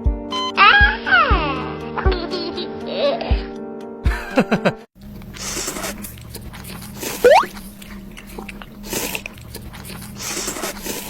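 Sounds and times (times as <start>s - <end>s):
quick rising whistle: 7.3s - 7.5s.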